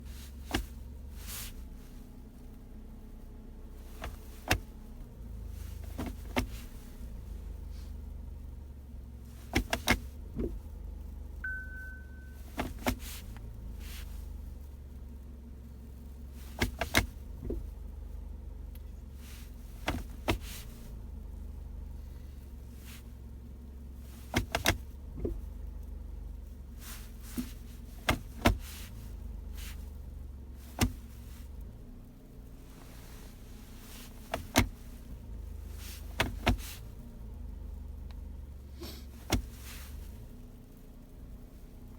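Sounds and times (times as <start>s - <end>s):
car idling with low hum: 0.0s - 41.9s
gear selector clicks: 9.5s - 10.6s, 16.5s - 17.7s, 24.3s - 25.4s, 27.3s - 29.9s, 30.6s - 31.2s, 34.1s - 34.9s, 36.0s - 36.9s, 39.1s - 40.1s.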